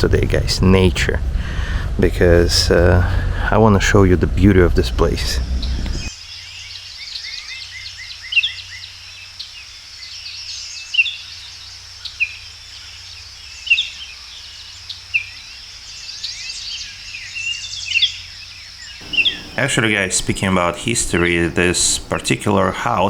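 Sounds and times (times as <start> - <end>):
songbirds chirping and singing: 5.4 - 23.0
steady high-pitched hum: 19.0 - 23.0.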